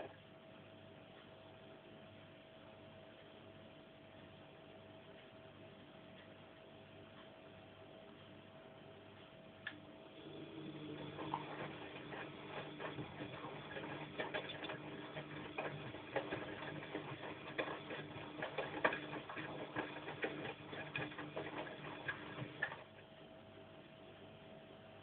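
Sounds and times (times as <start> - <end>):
washing machine motor humming: 0.0 - 0.2, 9.4 - 23.5
laundry tumbling clicks and knocks: 11.0 - 22.9.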